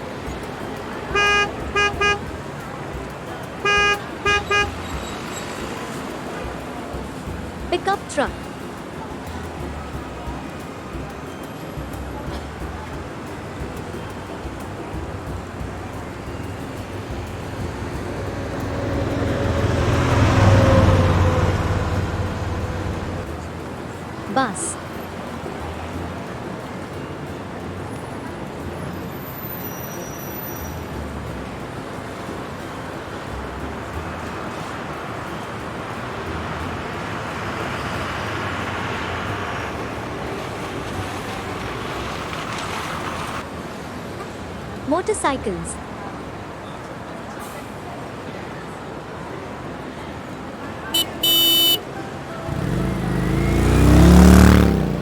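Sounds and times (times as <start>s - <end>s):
bus engine and road noise: 0.0s - 55.0s
pickup truck driving past: 8.4s - 24.0s, 28.6s - 43.4s, 50.9s - 55.0s.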